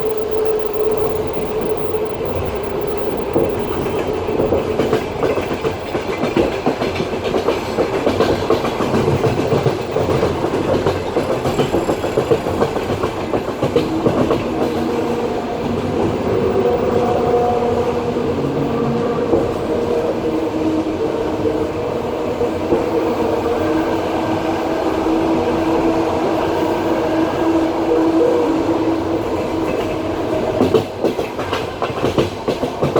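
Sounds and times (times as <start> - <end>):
steady multi-tone hum: 0.0 - 7.2, 7.8 - 12.3
train wheels clattering on rails: 0.0 - 21.7, 29.2 - 32.9.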